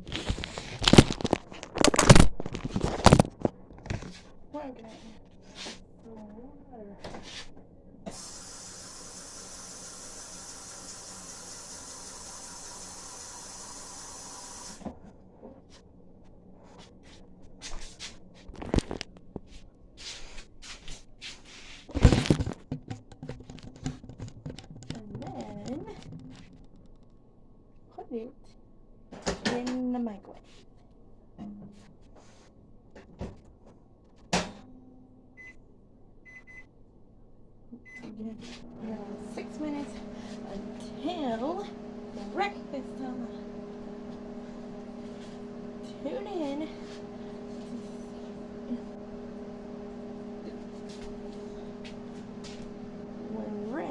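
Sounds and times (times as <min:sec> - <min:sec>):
water running from a tap: 0:08.1 - 0:14.8
kitchenware clicking and knocking: 0:22.6 - 0:26.6.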